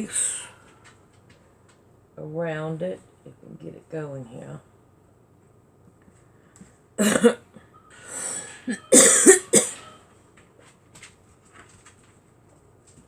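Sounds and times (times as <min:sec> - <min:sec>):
man coughing: 0:07.0 - 0:07.4, 0:08.7 - 0:09.8
drawn breath: 0:07.9 - 0:08.7.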